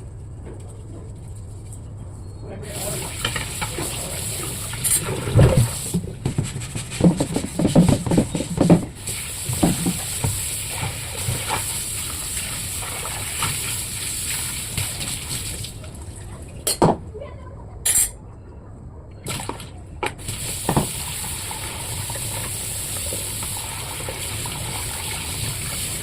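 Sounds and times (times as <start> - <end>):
water running and splashing: 2.7 - 16.6, 19.3 - 26.0.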